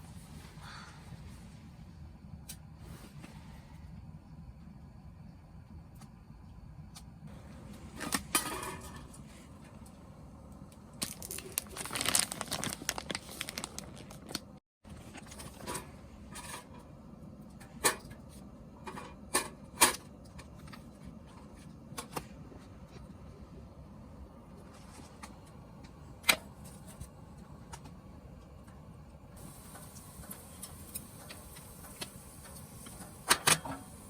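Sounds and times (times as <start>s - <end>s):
rustling and crinkling: 11.0s - 16.5s.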